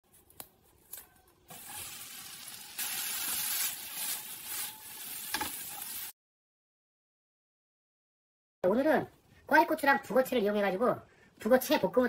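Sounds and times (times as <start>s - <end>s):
food sizzling in hot oil: 1.5s - 6.2s.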